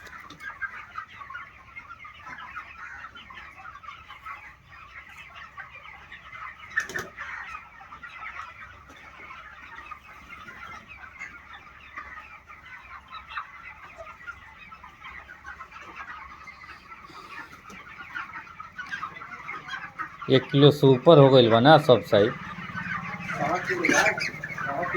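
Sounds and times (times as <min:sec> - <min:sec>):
chickens clucking and cheeping: 0:00.0 - 0:24.9.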